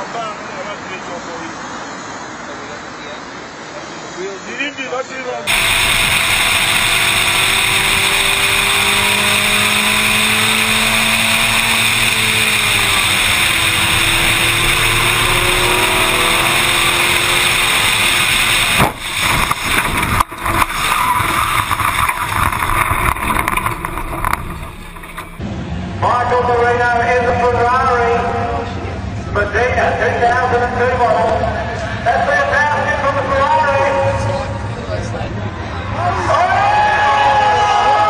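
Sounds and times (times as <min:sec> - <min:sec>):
car engines: 0:00.0 - 0:38.0
road noise: 0:00.0 - 0:38.0
choppy engine sound: 0:05.5 - 0:26.4.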